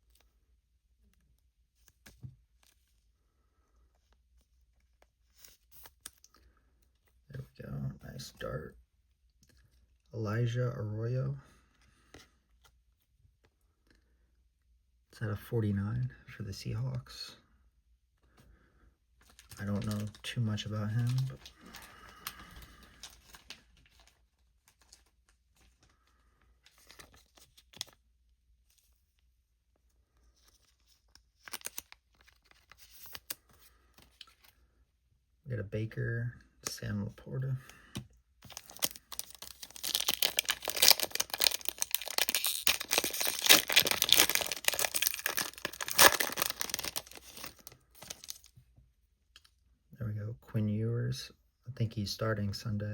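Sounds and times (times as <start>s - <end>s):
foil wrapper crinkling and tearing: 19.2s - 25.1s, 31.4s - 34.4s, 38.4s - 48.5s
trading cards rustling and clicking: 19.2s - 25.9s, 37.9s - 48.5s.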